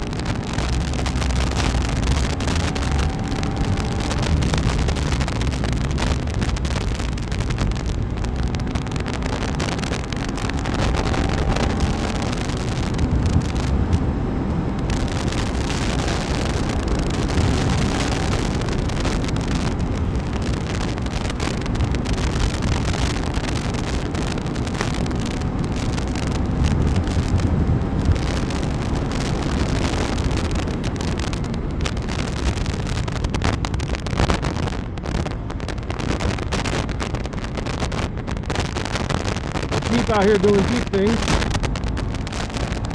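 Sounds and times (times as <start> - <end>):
motorcycle engine cruising: 0.0 - 33.7
wind rushing over microphone: 0.0 - 42.9.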